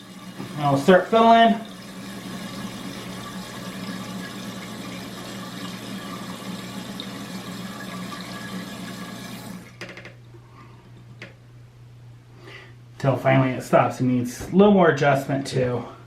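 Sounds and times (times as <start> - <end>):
toilet tank refilling: 0.0 - 10.1.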